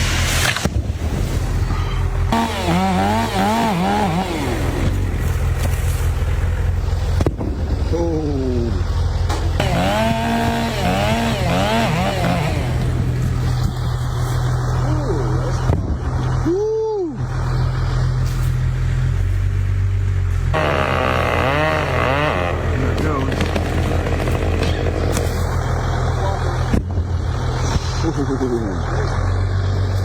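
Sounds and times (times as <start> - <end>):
chainsaw idling and revving: 2.1 - 7.3, 9.5 - 14.2, 20.5 - 26.7.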